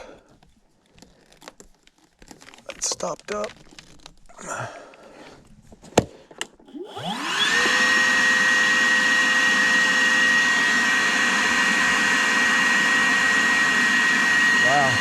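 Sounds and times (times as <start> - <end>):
shop vacuum motor whining: 6.6 - 15.0
vacuum sucking water: 6.7 - 15.0.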